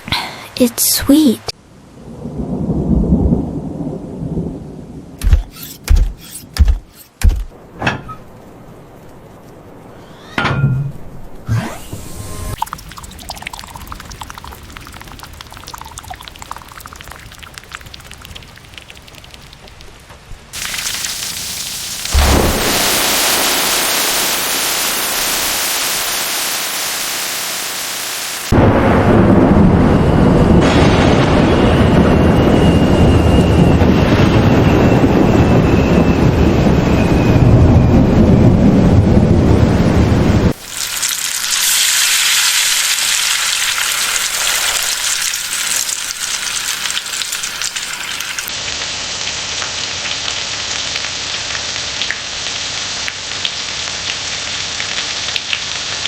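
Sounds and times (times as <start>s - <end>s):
thunder hit: 2.0s - 5.1s, 22.0s - 25.4s, 28.5s - 40.6s
deep thunder rumble: 2.0s - 5.2s, 21.9s - 25.3s, 28.5s - 40.6s
heavy rain hiss: 12.5s - 19.8s, 20.6s - 29.0s, 40.5s - 56.0s.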